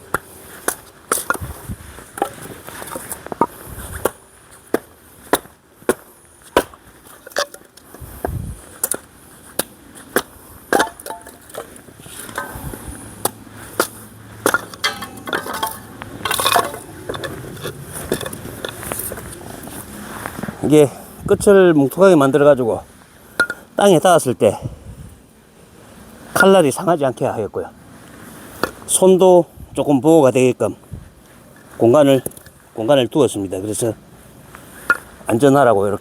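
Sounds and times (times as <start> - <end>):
hatchet chopping wood: 3.4 - 6.8.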